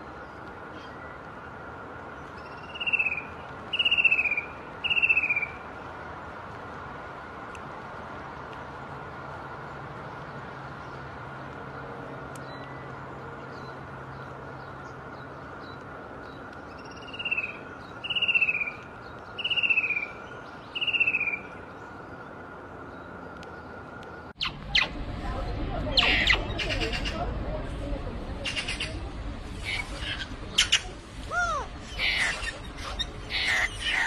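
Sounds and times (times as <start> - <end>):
loud downward-sliding bird calls: 29.6 - 34.0.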